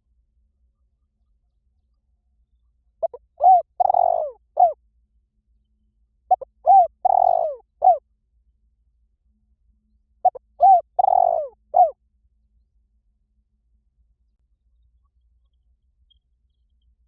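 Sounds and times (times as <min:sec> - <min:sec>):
dove cooing: 0:03.0 - 0:04.8, 0:06.3 - 0:08.0, 0:10.2 - 0:12.0.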